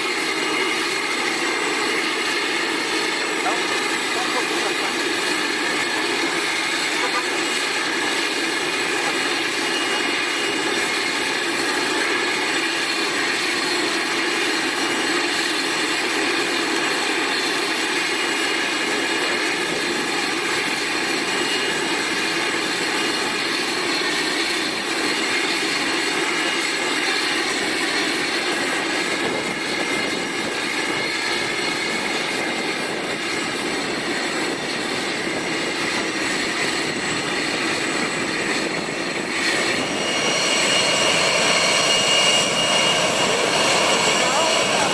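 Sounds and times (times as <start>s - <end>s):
high engine whine: 0.0s - 44.9s
jet engines rushing: 0.0s - 44.9s.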